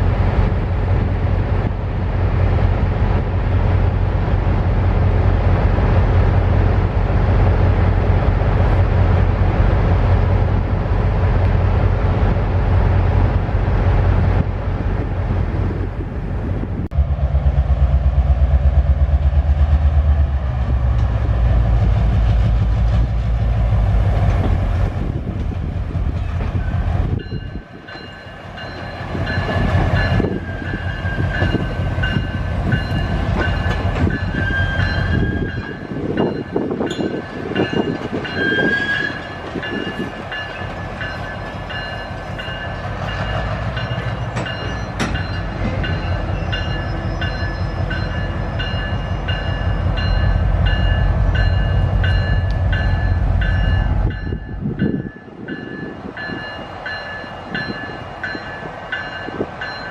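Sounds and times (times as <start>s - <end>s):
locomotive engine rumble: 0.0s - 59.9s
train cars clunking over rail joints: 25.2s - 59.9s.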